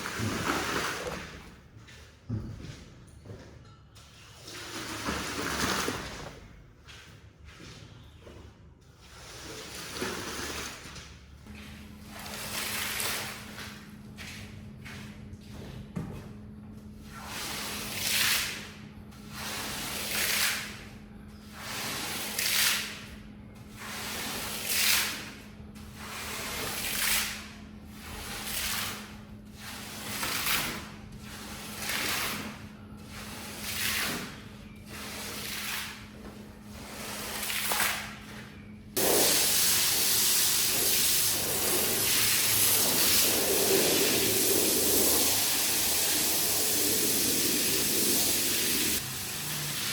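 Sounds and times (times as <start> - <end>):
water swooshing over rug: 0.0 - 1.5
spraying water hiss: 39.0 - 49.9.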